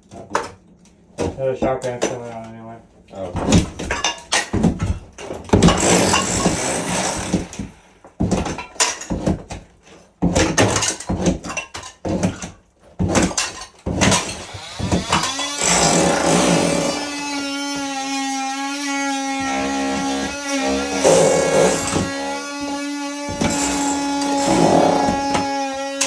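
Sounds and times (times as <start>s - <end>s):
crunching and clattering debris: 3.2s - 17.0s, 19.5s - 25.4s
sharp knocks and impacts: 3.3s - 17.2s, 19.4s - 25.5s.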